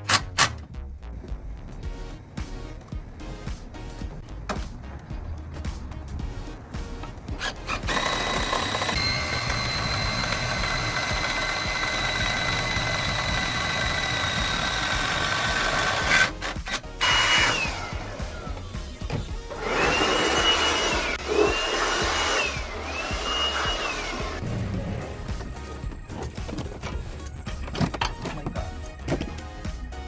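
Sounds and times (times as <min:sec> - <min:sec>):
power tool motor whine: 0:07.4 - 0:18.5, 0:19.5 - 0:24.4.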